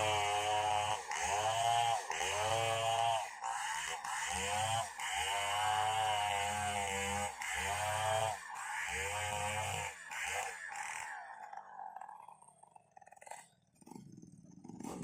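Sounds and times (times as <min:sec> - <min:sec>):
chainsaw cutting: 0:00.0 - 0:15.0.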